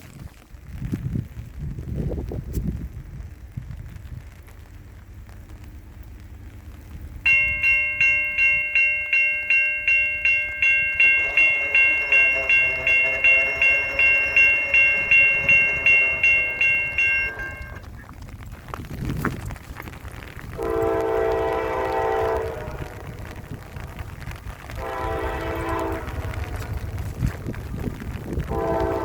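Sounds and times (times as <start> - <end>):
rain: 0.0 - 29.0
wind: 0.0 - 29.0
approaching train: 3.0 - 29.0
railroad crossing bell ringing: 7.2 - 17.9, 20.6 - 23.8, 24.4 - 26.9, 28.5 - 29.0.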